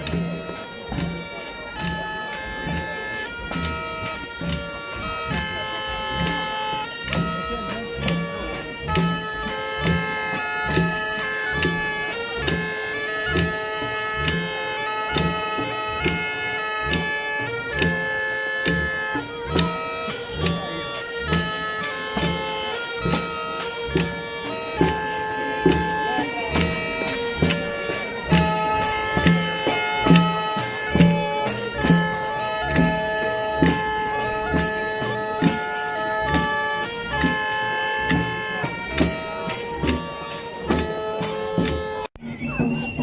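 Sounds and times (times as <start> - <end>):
drum beat: 0.0 - 17.2, 17.8 - 43.0
bagpipe playing a tune: 0.0 - 43.0.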